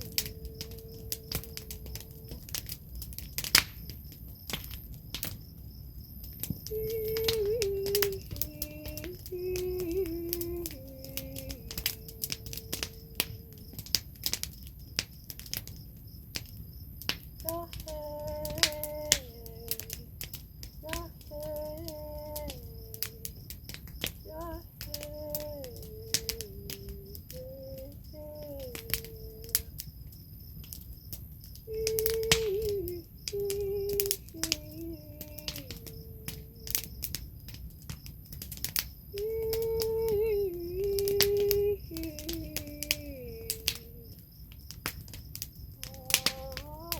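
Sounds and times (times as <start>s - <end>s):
woman humming held note: 0.0s - 2.6s, 6.7s - 13.6s, 20.8s - 23.3s, 24.3s - 29.7s, 31.7s - 36.8s, 39.2s - 44.2s, 45.8s - 46.9s
wood fire crackling: 0.0s - 46.9s.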